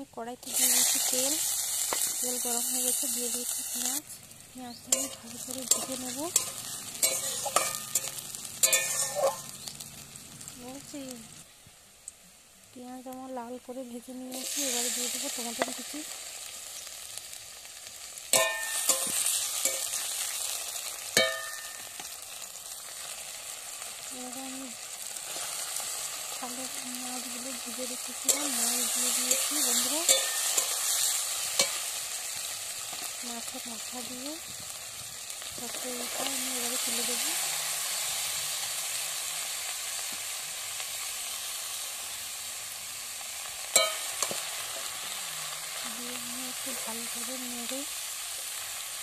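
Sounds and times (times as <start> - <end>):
onions sizzling in hot oil: 0.0 - 49.0
metal stirrer clanging on pan: 4.9 - 9.5, 18.3 - 20.0, 21.2 - 22.0, 28.3 - 31.8, 43.7 - 44.4.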